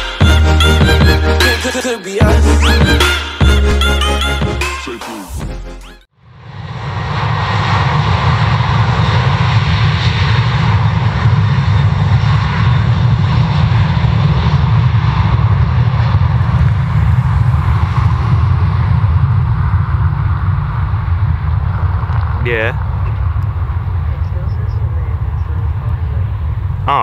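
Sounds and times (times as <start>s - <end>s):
intro music: 0.0s - 6.1s
jet engines rumbling: 6.3s - 27.0s.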